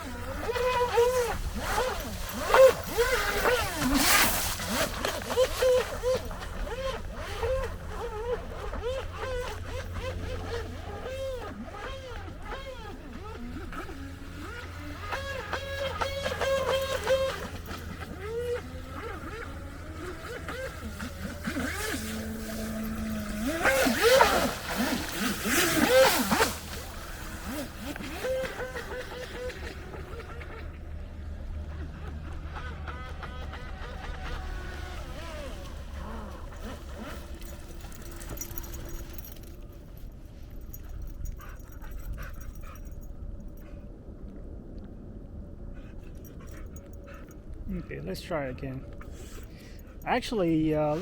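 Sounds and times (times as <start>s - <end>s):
electric motor whining: 0.0s - 30.8s
dog whimpering and panting: 40.6s - 43.8s, 45.8s - 48.1s.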